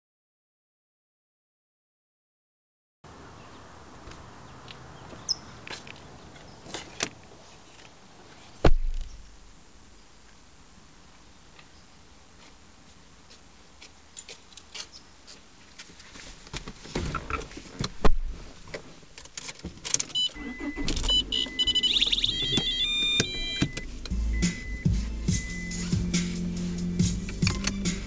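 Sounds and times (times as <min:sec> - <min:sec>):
loud thump: 0:08.6 - 0:09.3, 0:17.9 - 0:18.4
car engine starting and running: 0:19.6 - 0:28.0
electronic chime tones: 0:20.2 - 0:25.8.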